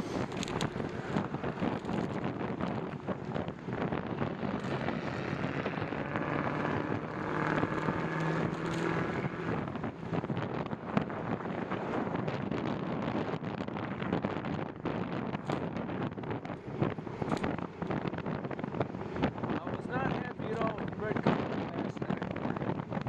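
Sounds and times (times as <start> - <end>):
steady hum: 0.0 - 12.2
wind buffeting microphone: 0.0 - 23.0.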